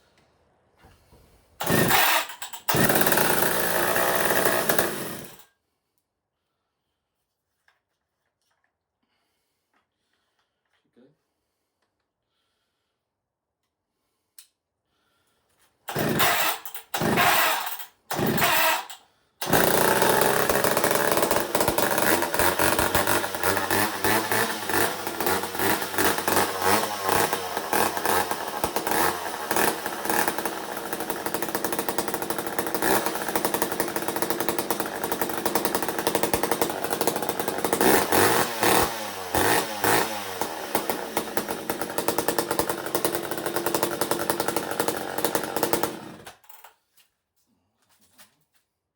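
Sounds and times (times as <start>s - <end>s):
chainsaw throttle blips: 1.6s - 5.4s, 15.9s - 46.5s
chainsaw starting and running: 1.6s - 5.5s, 15.9s - 46.8s.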